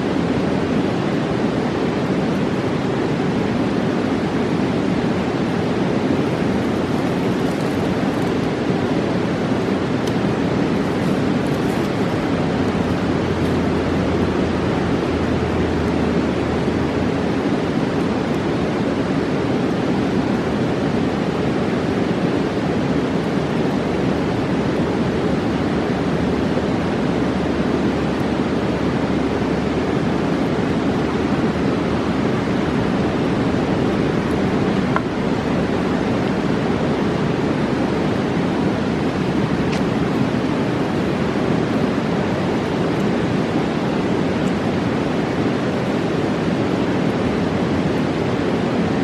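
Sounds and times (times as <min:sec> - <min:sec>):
roaring river rushing: 0:00.0 - 0:49.0.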